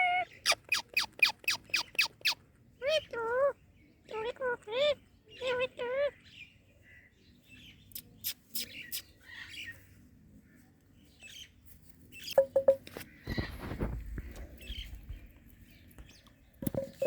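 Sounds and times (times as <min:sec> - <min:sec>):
parrot chirps: 0:00.0 - 0:06.2
rustling scrape: 0:11.6 - 0:15.3.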